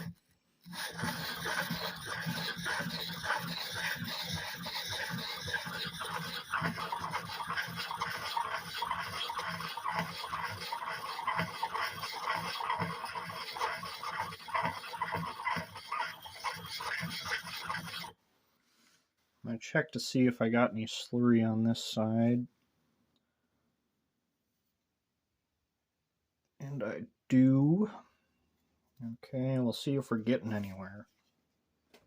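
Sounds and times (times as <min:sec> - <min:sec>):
hatchet scraping on sharpening stone: 0:00.7 - 0:18.1.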